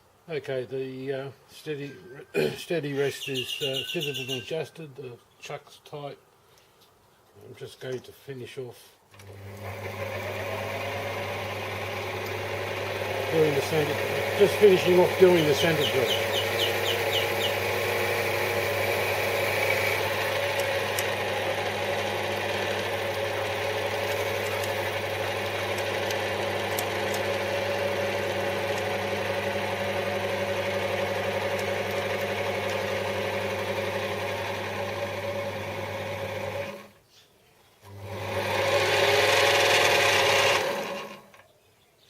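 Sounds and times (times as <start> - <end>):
metal lathe motor humming: 9.2 - 36.9, 37.9 - 41.3
drill cutting metal: 9.4 - 36.8, 38.2 - 41.2.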